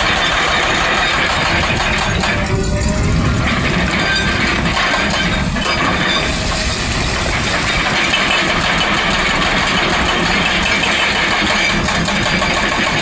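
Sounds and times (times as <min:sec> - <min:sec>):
excavator engine running: 0:00.0 - 0:13.0
mechanical clatter: 0:00.0 - 0:13.0.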